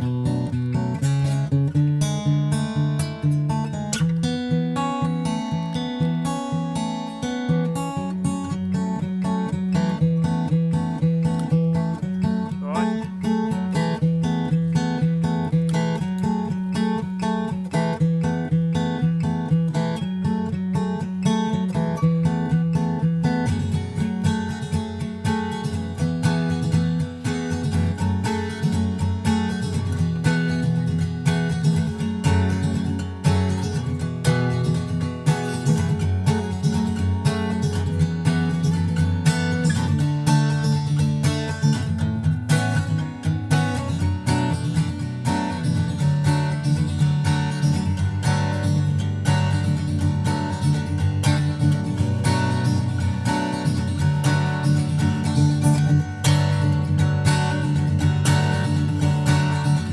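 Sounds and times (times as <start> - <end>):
acoustic guitar music: 0.0 - 59.9.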